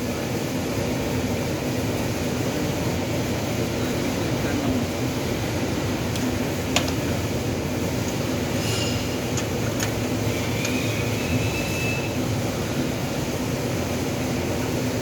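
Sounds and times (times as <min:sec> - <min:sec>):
mechanical hum and rumble: 0:00.0 - 0:15.0
thin squeal-like tone: 0:10.3 - 0:12.2.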